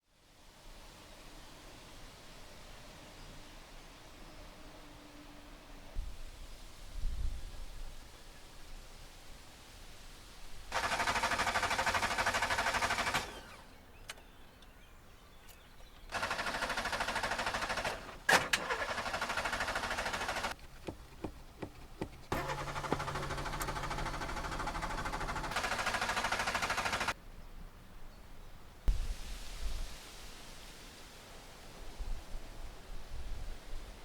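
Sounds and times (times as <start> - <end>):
starter motor cranking engine: 10.7 - 13.9, 16.1 - 20.6, 22.0 - 27.2.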